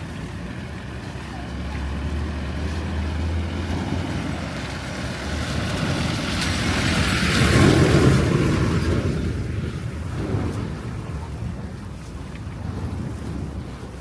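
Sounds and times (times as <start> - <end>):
vehicle engine hum: 0.0 - 14.0
rushing noise: 1.0 - 11.3.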